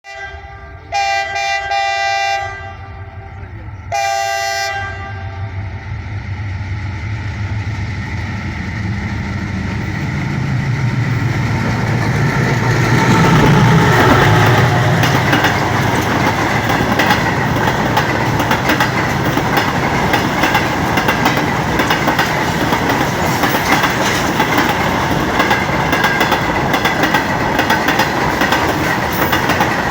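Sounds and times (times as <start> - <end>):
locomotive horn blasts: 0.0 - 3.3, 3.9 - 5.6
locomotive engine drone: 0.3 - 29.9
train wheels clattering: 7.3 - 29.9.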